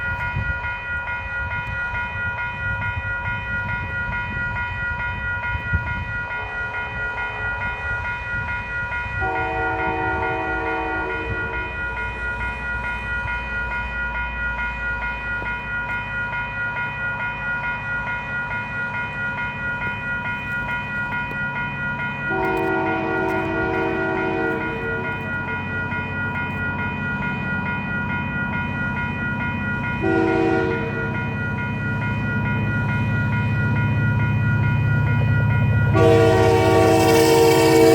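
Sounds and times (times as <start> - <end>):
steady high ringing: 0.0 - 37.9
train rumble: 0.0 - 37.9
train horn: 9.2 - 11.9, 22.3 - 25.4, 30.0 - 31.2, 35.9 - 37.9.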